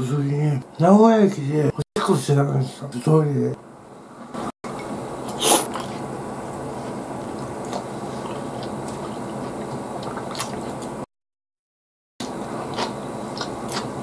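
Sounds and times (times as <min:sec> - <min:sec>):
wet chewing: 0:05.3 - 0:11.1, 0:12.4 - 0:14.0.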